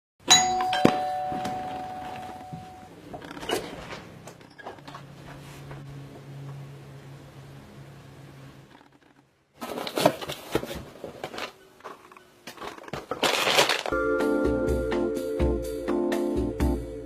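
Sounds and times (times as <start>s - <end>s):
keyboard music: 0.3s - 3.0s, 13.9s - 17.0s
rustling and crinkling: 8.7s - 14.0s.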